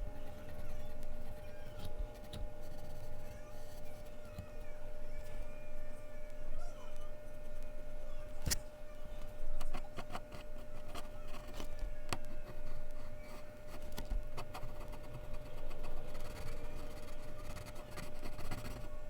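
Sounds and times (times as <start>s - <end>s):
pencil scratching on paper: 0.0s - 4.6s, 9.6s - 18.9s
faint steady hum: 0.0s - 19.0s.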